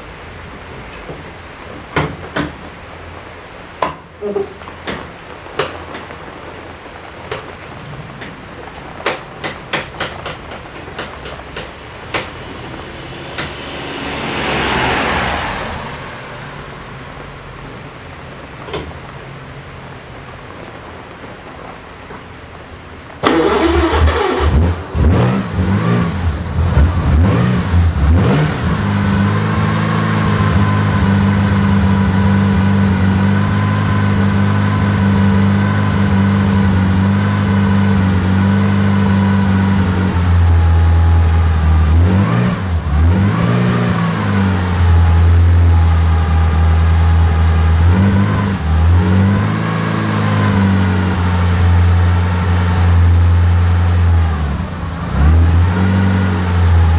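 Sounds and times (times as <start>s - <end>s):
car engine idling and revving: 11.0s - 18.1s, 23.2s - 56.9s.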